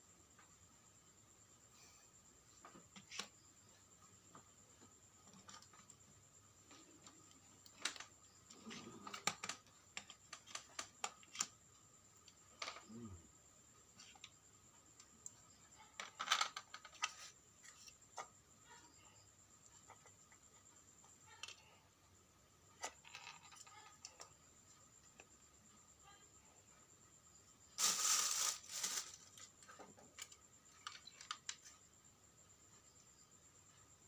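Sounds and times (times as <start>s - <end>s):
faint high-pitched whine: 0.0s - 34.0s
small hard parts clicking: 6.7s - 11.6s.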